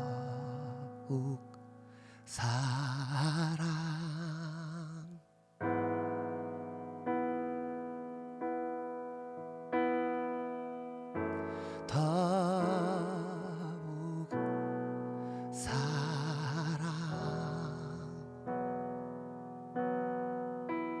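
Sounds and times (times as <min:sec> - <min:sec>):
person singing with vibrato: 0:00.0 - 0:05.3, 0:11.6 - 0:14.5, 0:15.2 - 0:18.3
keyboard chords: 0:00.0 - 0:21.0.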